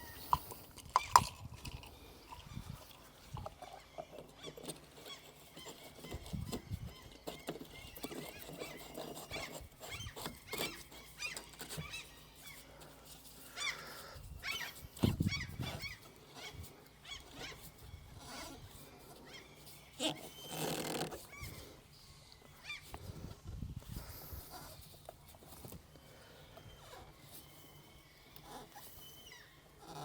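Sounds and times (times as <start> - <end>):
small parts clicking and knocking: 0.0 - 12.1
short high squeaky calls: 28.5 - 29.7.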